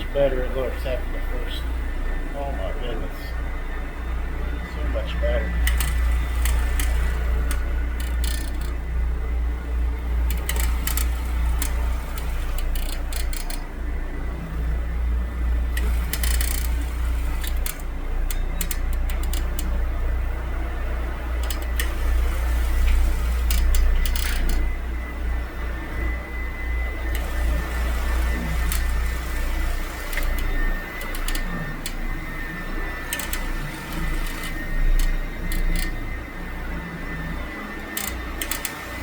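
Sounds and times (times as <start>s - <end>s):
sharp clicks and crackles: 5.7s - 8.8s, 10.2s - 13.6s, 21.4s - 24.8s, 27.1s - 32.1s, 37.9s - 39.0s
carpet cleaning machine humming: 8.7s - 39.0s.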